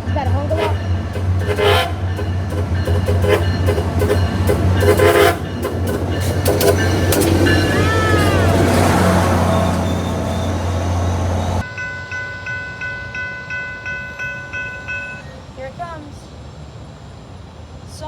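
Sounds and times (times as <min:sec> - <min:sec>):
diesel train running past: 0:00.0 - 0:18.0
train horn blasts: 0:00.4 - 0:06.0.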